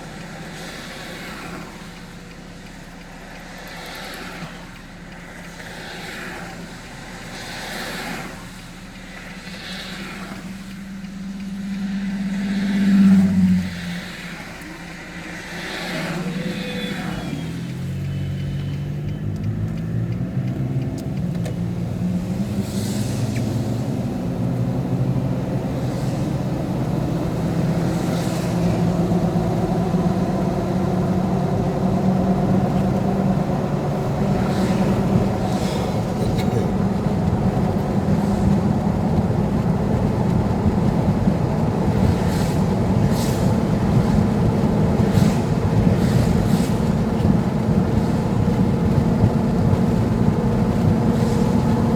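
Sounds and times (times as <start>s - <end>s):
vehicle engine droning: 0.0s - 51.9s
hissy swishes: 6.5s - 17.8s.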